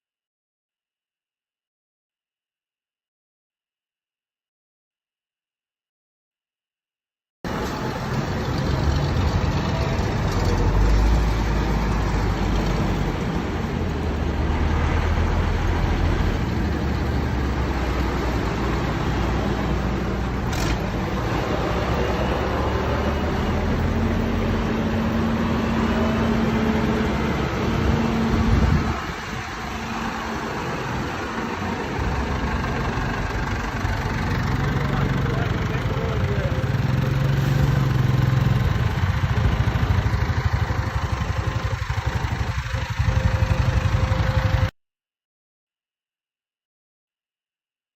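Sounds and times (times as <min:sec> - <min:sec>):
old tractor engines rumbling: 0:07.5 - 0:44.7.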